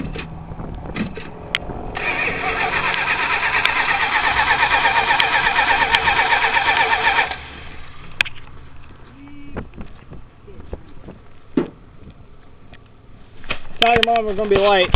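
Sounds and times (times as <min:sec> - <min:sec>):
starter motor cranking engine: 0:02.0 - 0:07.7.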